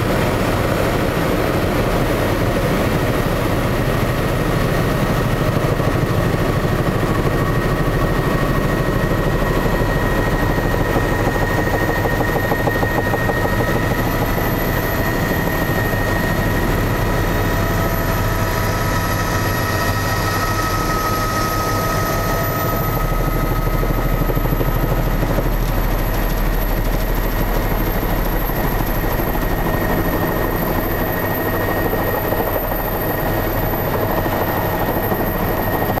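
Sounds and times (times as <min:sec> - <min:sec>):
helicopter rotor beating: 0:00.0 - 0:36.0
turbine engine whine: 0:00.0 - 0:36.0.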